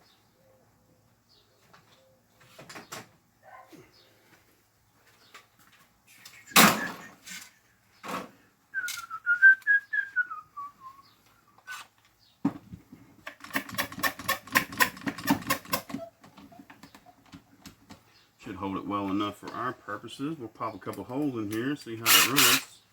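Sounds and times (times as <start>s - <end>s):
clamp ratchet clicking: 13.4s - 16.0s, 22.0s - 22.7s.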